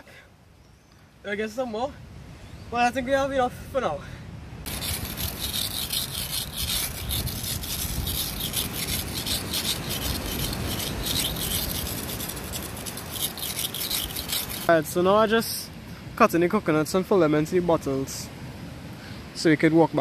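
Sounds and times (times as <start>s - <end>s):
fast rasping and scraping: 4.7s - 15.0s.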